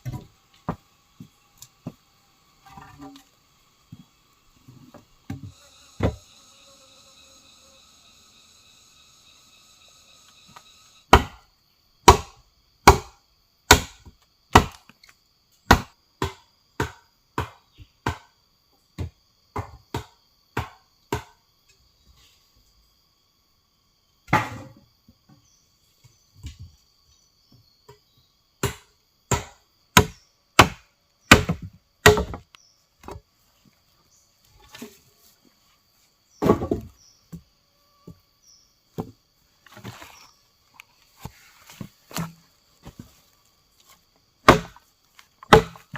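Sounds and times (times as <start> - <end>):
wood being chopped: 11.1 - 11.4, 12.0 - 14.9, 15.7 - 18.3, 19.0 - 21.4, 24.3 - 24.8, 28.6 - 33.2, 36.4 - 36.9, 42.1 - 43.0, 44.4 - 45.9.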